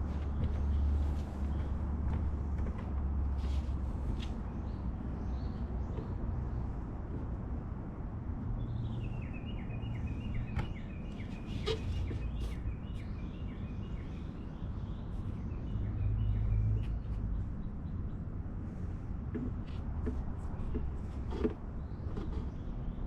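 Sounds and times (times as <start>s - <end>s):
bird chirping: 8.6s - 18.2s.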